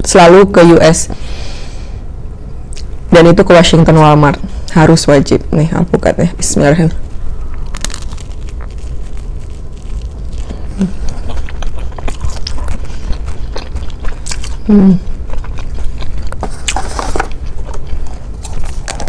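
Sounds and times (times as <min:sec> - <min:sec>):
crunching toast: 0:07.2 - 0:19.0
wet mouth sounds: 0:07.4 - 0:17.9.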